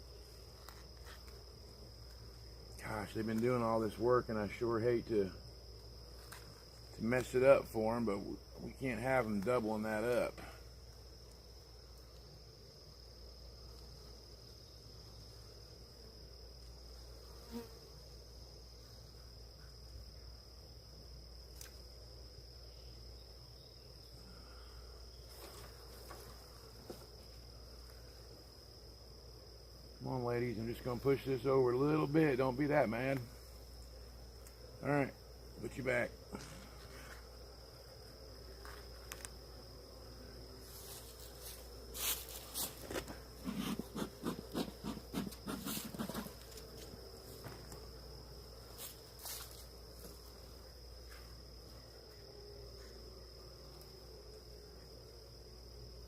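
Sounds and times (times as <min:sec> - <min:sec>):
high-pitched insect whine: 0:00.0 - 0:56.0
honeybees buzzing: 0:00.0 - 0:56.0
wooden hive frame scraping: 0:36.2 - 0:51.4.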